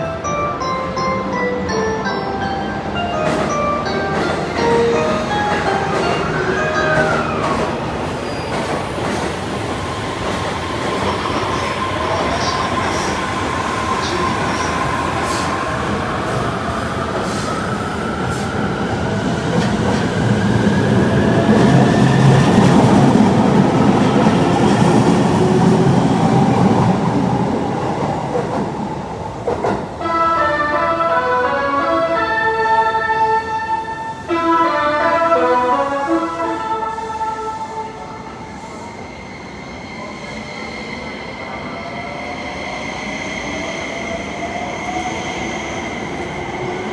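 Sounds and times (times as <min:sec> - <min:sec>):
train wheels rumbling on rails: 0:03.1 - 0:30.4.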